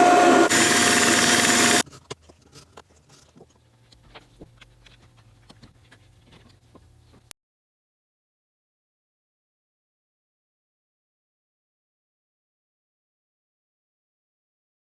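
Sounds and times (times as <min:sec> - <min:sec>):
power drill whining in wood: 0:00.0 - 0:01.8.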